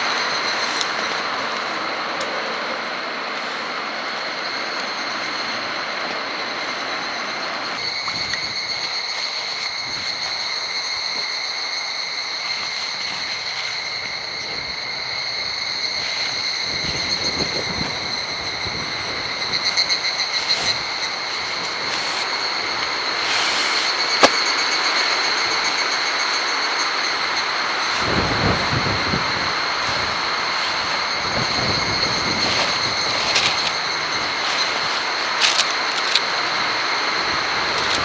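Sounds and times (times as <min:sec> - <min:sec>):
strong wind rushing: 0:14.0 - 0:24.5, 0:27.8 - 0:35.6.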